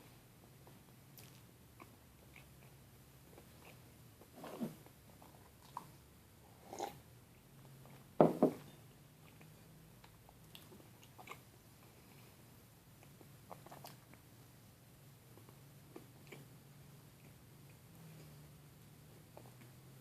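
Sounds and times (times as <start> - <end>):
person chewing food: 0.6 - 6.0, 9.2 - 12.2, 12.9 - 14.3, 15.3 - 18.4.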